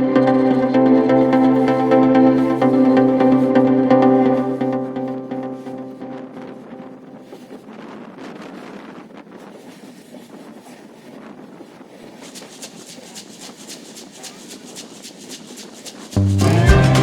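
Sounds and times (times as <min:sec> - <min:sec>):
loud music: 0:00.0 - 0:06.6, 0:16.2 - 0:17.0
wind buffeting microphone: 0:00.0 - 0:16.2.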